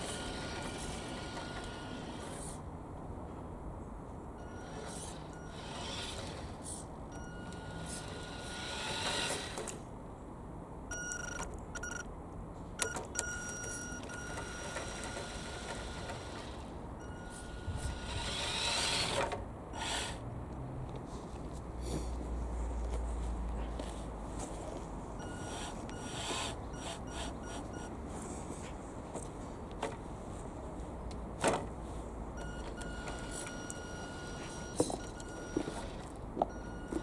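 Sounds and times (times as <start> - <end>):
electric motor whining: 0.0 - 2.6, 4.5 - 9.8, 14.0 - 20.2, 25.3 - 27.9.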